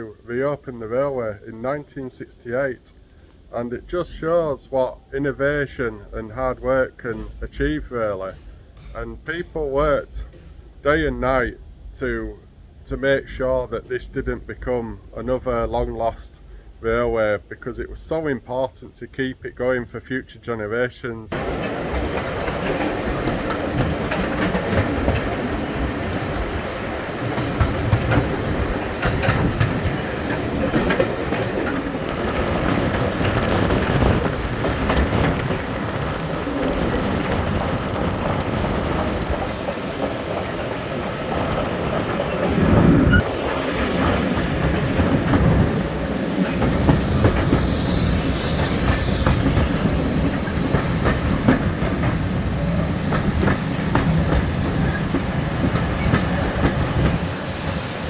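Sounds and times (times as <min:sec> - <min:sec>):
train wheels clicking on rails: 0:06.3 - 0:10.8, 0:21.3 - 0:58.0
high-pitched squeal: 0:45.4 - 0:52.2.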